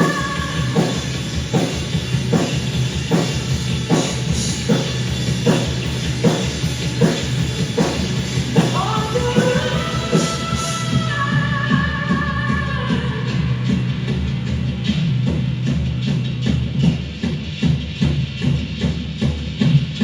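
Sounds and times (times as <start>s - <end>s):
rock band playing: 0.0s - 12.2s
drum kit beat: 0.0s - 20.0s.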